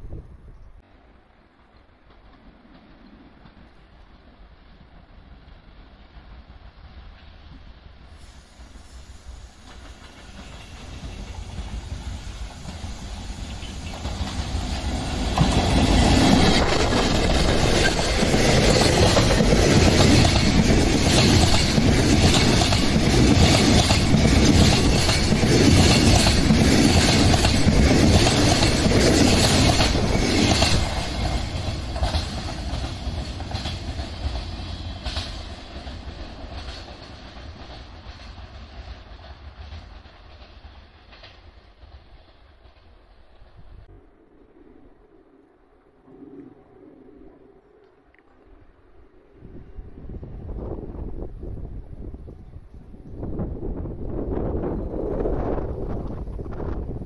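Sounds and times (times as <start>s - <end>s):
freight train wheels clattering: 9.6s - 43.6s.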